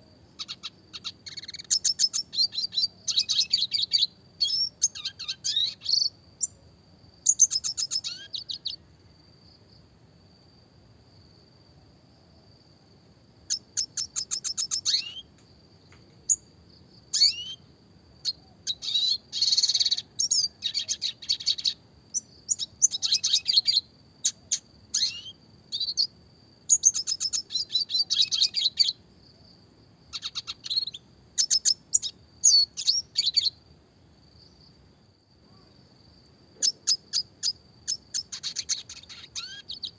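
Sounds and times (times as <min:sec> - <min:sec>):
bird singing trills and chirps: 0:00.3 - 0:06.6, 0:07.2 - 0:08.8, 0:13.5 - 0:15.3, 0:16.2 - 0:16.5, 0:17.1 - 0:29.0, 0:30.1 - 0:33.6, 0:36.6 - 0:39.9.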